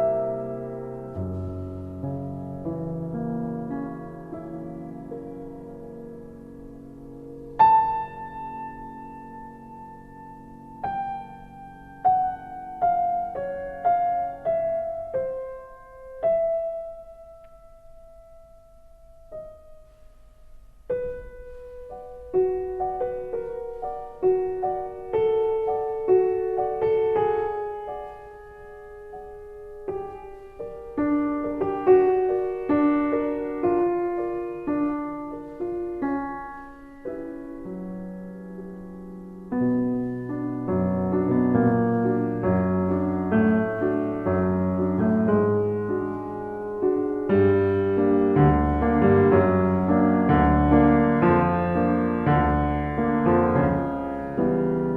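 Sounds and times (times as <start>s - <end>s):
slow solo piano music: 0.0s - 54.9s.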